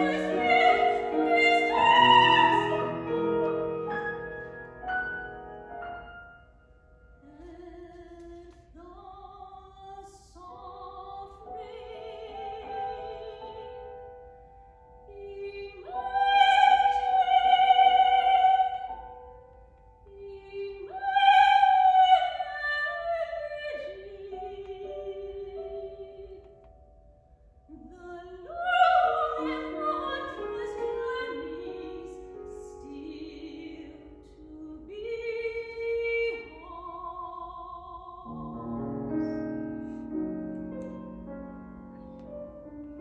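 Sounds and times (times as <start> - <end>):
operatic singing: 0.0 - 4.3.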